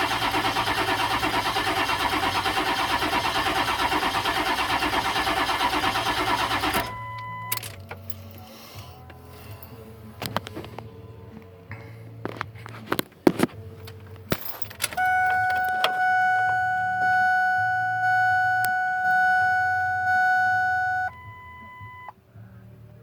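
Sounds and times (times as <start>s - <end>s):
dashboard warning chime: 6.1s - 8.2s, 14.8s - 22.1s
keys jangling: 7.5s - 9.9s, 13.8s - 16.0s
clicks: 12.3s - 22.1s
steady beep: 15.0s - 22.1s.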